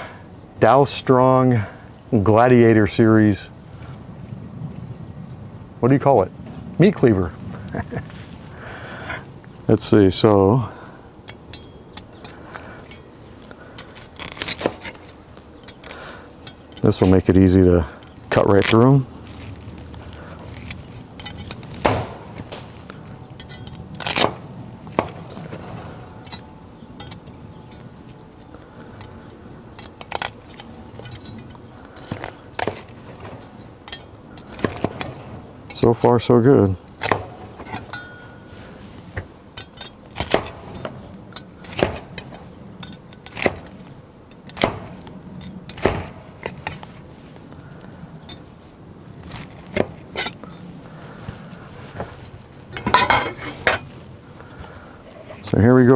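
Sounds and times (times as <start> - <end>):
cleaver chopping through ribs: 20.1 - 22.6, 24.0 - 25.6, 31.9 - 33.4, 34.4 - 35.2, 40.1 - 41.0, 41.6 - 42.5, 43.2 - 43.8, 44.4 - 45.1, 45.7 - 46.7
meat cleaver chopping ribs: 41.6 - 42.4.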